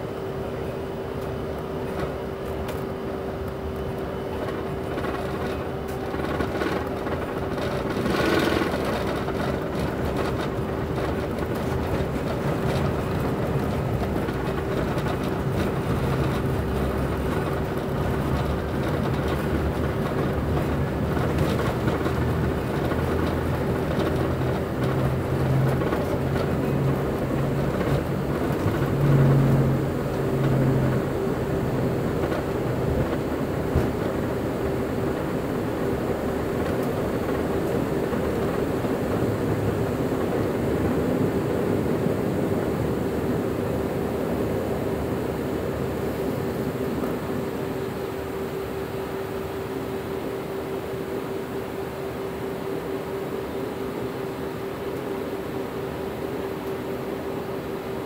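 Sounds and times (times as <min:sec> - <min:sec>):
jet engines steady tone: 0:00.0 - 0:58.0
low shifting rumble: 0:03.0 - 0:48.1.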